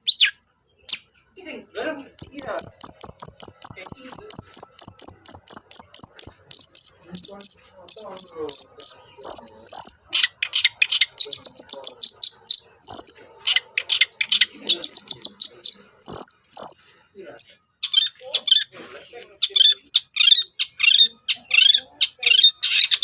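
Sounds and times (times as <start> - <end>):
shrike singing: 2.1 - 18.8.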